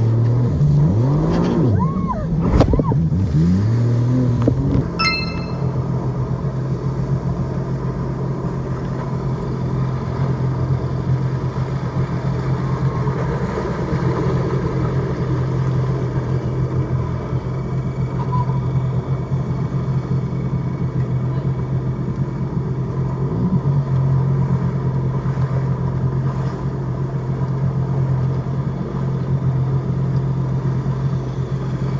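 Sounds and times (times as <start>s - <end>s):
wind: 1.2s - 3.5s.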